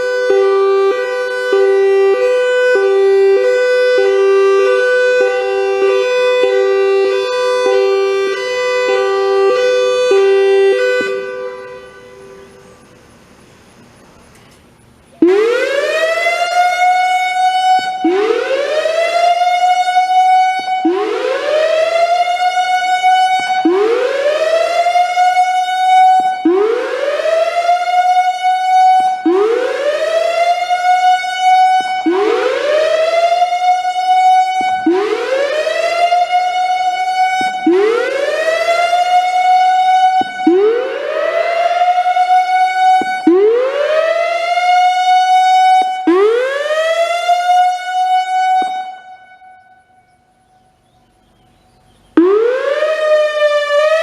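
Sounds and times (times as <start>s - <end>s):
warning siren whooping: 0.0s - 13.0s, 15.2s - 54.0s.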